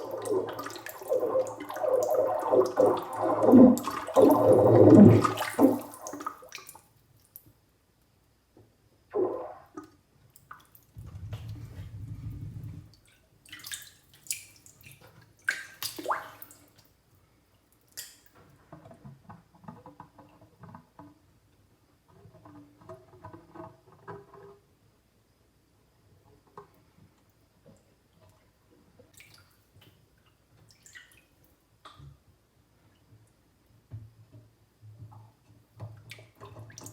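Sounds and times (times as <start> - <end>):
bubbles gurgling underwater: 0.0 - 6.1, 11.0 - 12.9
bath water splashing: 0.0 - 6.8, 10.5 - 16.7.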